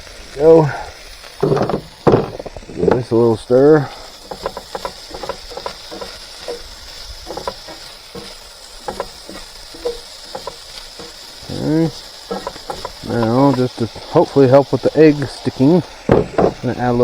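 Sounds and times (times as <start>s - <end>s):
food sizzling in a frying pan: 0.0s - 17.0s
utensil scraping a pan: 1.4s - 17.0s.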